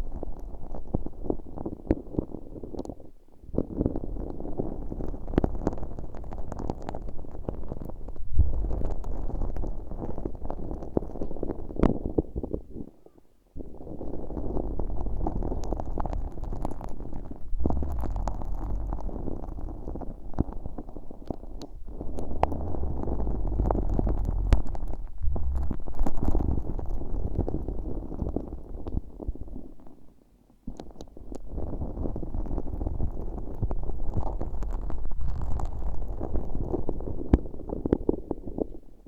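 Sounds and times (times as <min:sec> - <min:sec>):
sticky slime crackling: 0:04.1 - 0:12.6, 0:13.6 - 0:29.2
deep rumble: 0:05.4 - 0:11.5, 0:13.8 - 0:29.5.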